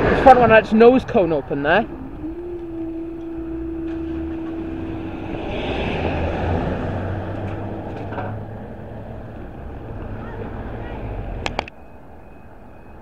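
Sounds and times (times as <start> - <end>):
vehicle passing: 0.0 - 12.2
steady tone: 0.3 - 10.0
low steady hum: 1.6 - 10.0.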